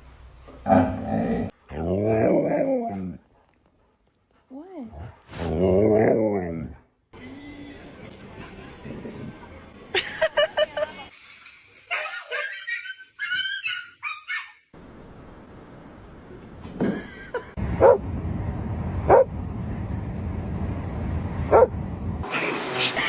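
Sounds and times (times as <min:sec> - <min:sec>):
dog barking: 0:17.8 - 0:18.0, 0:19.1 - 0:19.3, 0:21.5 - 0:21.7.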